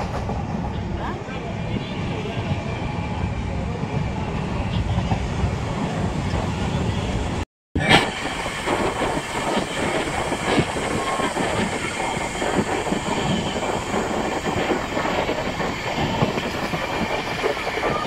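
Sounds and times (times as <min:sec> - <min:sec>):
clatter over the track: 0:00.0 - 0:01.2, 0:07.8 - 0:18.0
train wheels rushing on rail: 0:00.0 - 0:18.0.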